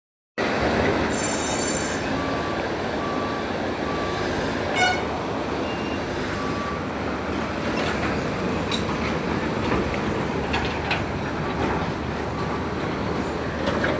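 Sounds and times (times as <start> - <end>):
engine running with clatter: 6.4 - 13.9.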